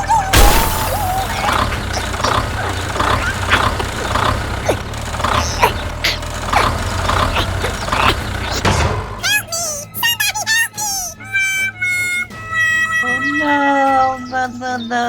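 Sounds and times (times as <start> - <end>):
low engine rumble: 0.0 - 9.5.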